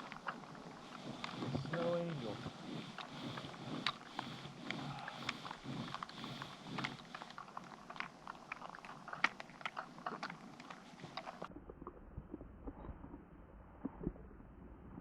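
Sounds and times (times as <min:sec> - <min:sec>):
snow crunching: 0:00.0 - 0:11.5.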